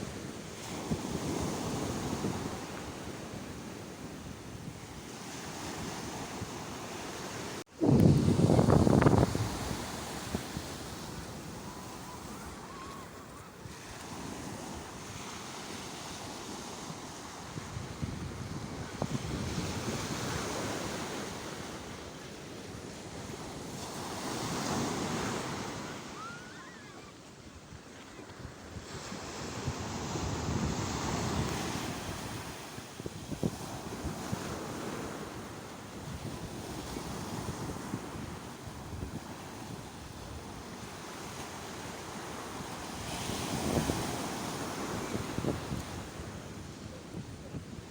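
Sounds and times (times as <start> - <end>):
wind on microphone: 0.0 - 22.0, 22.7 - 47.9
sea waves breaking: 4.8 - 17.6, 22.8 - 27.3.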